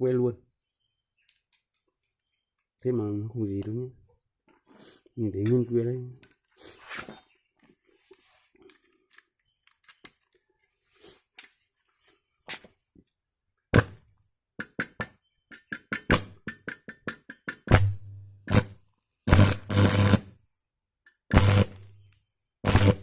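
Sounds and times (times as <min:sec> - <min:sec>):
welding arc crackles: 0:17.7 - 0:20.4, 0:21.3 - 0:23.0.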